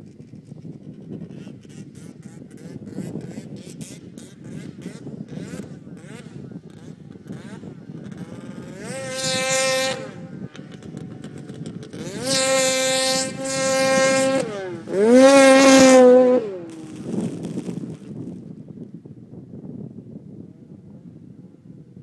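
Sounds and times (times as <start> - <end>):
snowmobile engine revving: 1.4 - 18.0.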